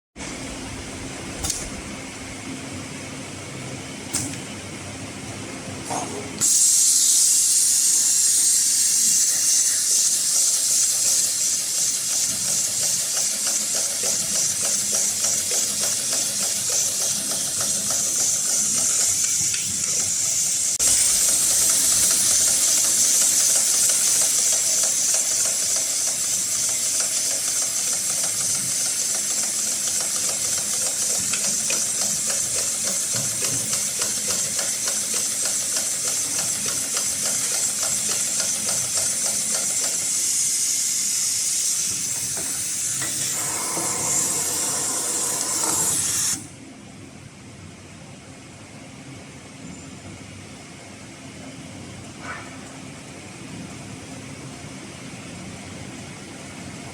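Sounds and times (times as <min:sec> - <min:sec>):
steady hiss: 0:06.4 - 0:33.1.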